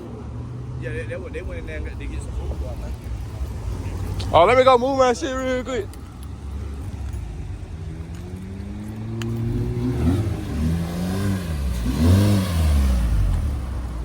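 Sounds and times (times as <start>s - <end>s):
car engine revving: 6.3s - 14.0s.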